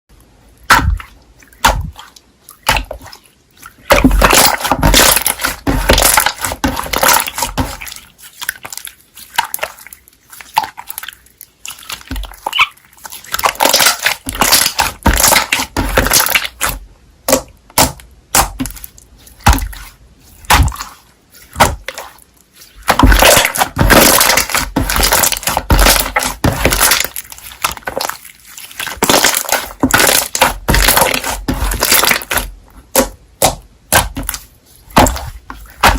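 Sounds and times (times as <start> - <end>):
slime squished by hand: 0.6 - 35.9
slime crackling and popping: 13.3 - 19.7, 22.9 - 35.9.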